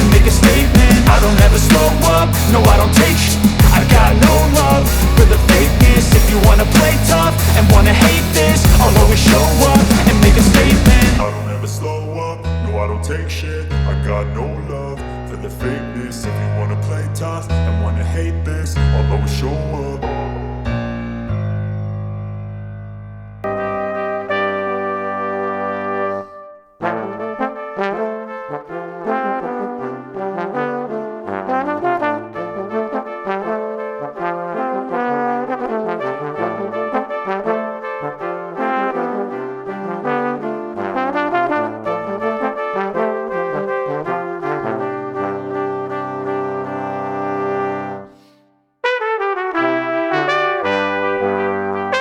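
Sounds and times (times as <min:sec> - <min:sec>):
instrumental brass music: 0:00.0 - 0:12.6, 0:23.4 - 0:52.0.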